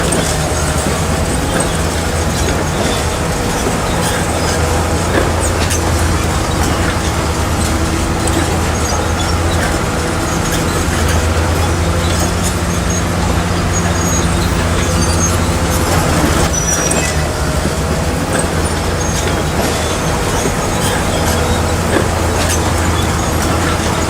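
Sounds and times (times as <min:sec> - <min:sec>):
bulldozer diesel engine: 0:00.0 - 0:24.0
steel tracks clanking and squeaking: 0:00.0 - 0:24.0.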